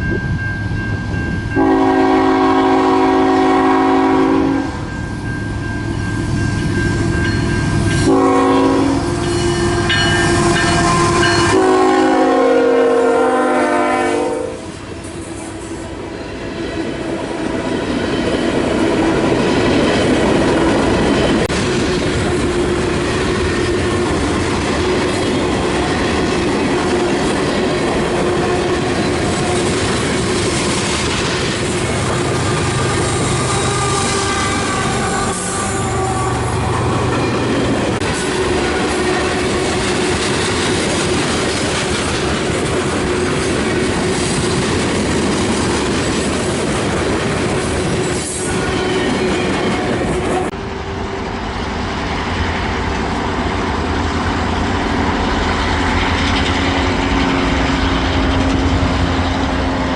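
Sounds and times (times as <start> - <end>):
locomotive air horn blasts: 1.5 - 4.9, 7.9 - 16.1, 32.1 - 37.0
wheels clacking over rail joints: 36.7 - 50.5.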